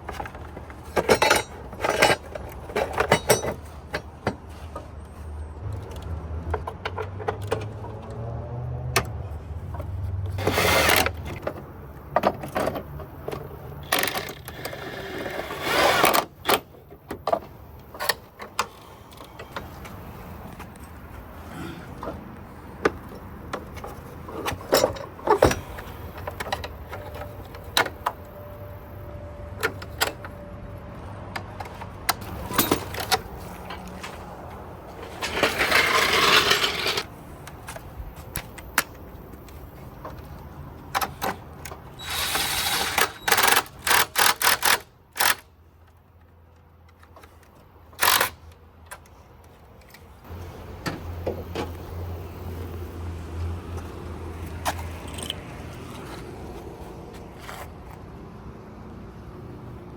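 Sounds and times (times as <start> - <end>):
metal tools clinking and knocking: 0.1 - 8.0, 22.8 - 28.7, 31.6 - 37.1.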